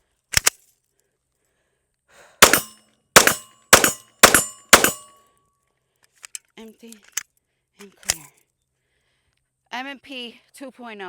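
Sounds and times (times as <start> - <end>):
pistol shots: 2.4 - 5.1
sharp double click: 2.4 - 5.1.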